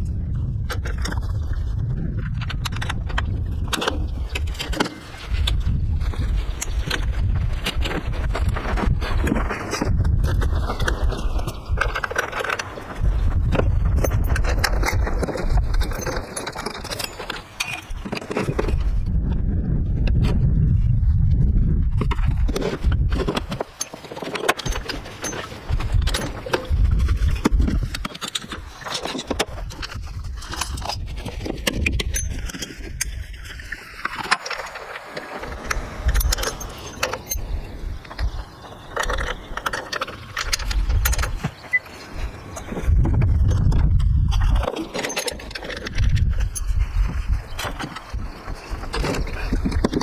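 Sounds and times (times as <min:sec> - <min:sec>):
metal tools clinking: 0:13.9 - 0:18.4, 0:23.3 - 0:31.3, 0:32.0 - 0:32.8, 0:35.6 - 0:38.3, 0:44.6 - 0:46.7.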